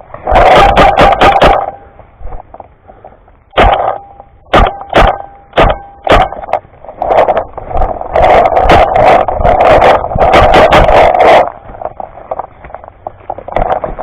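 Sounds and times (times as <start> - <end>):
paintball markers firing: 3.6 - 7.4.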